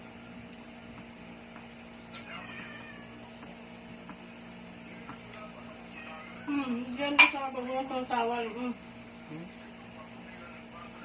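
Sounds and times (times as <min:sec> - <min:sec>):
cat meowing: 0:02.1 - 0:03.3.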